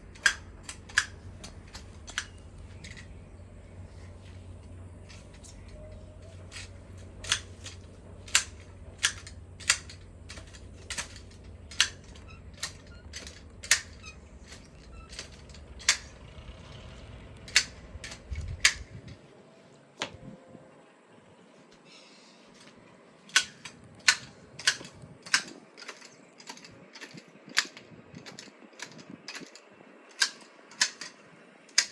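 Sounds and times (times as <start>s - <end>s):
garden shears snipping: 0.0s - 3.2s, 5.0s - 16.4s, 17.3s - 19.1s, 22.6s - 31.9s
low rumble: 0.0s - 21.4s.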